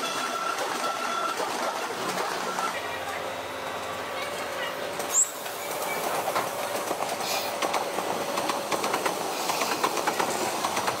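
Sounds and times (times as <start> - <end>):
high wheel squeal: 0.0 - 1.4, 5.1 - 6.2
train wheels clicking over rail joints: 0.0 - 2.9, 3.7 - 11.0.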